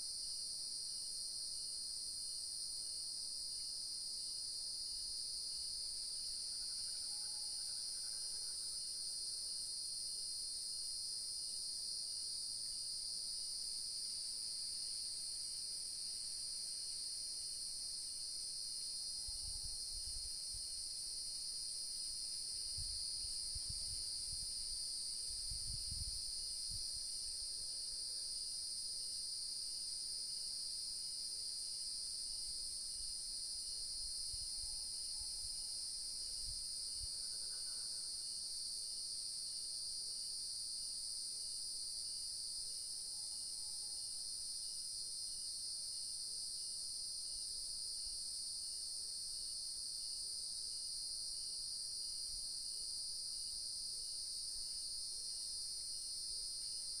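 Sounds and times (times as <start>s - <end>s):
crickets and insects chorus: 3.6s - 49.2s.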